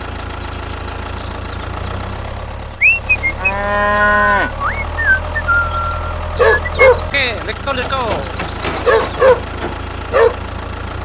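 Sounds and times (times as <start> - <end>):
low engine hum: 0.0 - 11.0
cow mooing: 3.3 - 4.9, 5.8 - 7.0.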